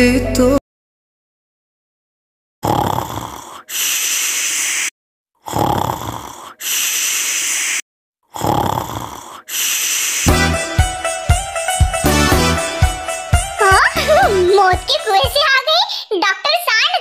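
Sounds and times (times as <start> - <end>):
snoring: 2.6 - 10.3
hissing out-breath: 3.0 - 4.9, 5.5 - 7.8, 8.4 - 10.3.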